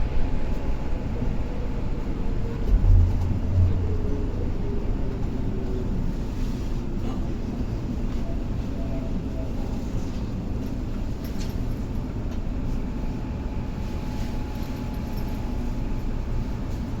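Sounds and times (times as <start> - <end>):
electric train rumbling: 0.0 - 17.0
faint falling whine: 1.6 - 6.4.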